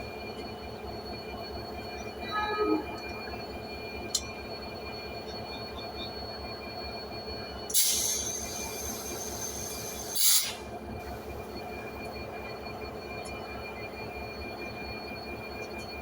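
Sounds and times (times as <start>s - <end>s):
diesel locomotive idling: 0.0s - 16.0s
air brakes hissing: 7.7s - 10.7s.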